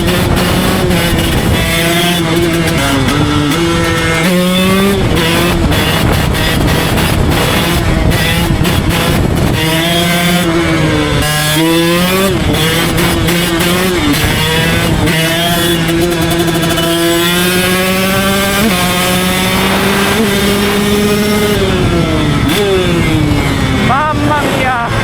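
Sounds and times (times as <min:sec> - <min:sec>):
two-stroke dirt bike engine: 0:00.0 - 0:25.0.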